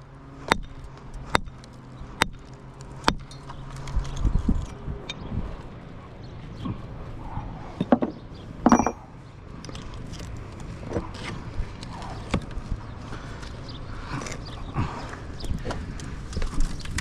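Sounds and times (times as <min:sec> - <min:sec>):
bricks and tools knocking: 0:07.8 - 0:09.0
ringing clink: 0:08.7 - 0:09.0.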